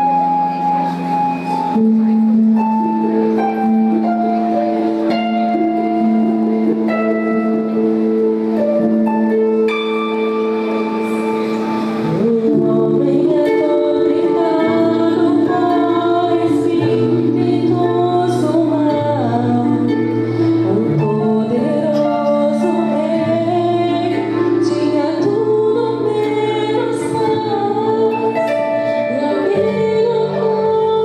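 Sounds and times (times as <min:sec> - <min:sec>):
held keyboard chords: 0:00.0 - 0:31.0
women singing together: 0:12.0 - 0:20.0, 0:20.6 - 0:28.3.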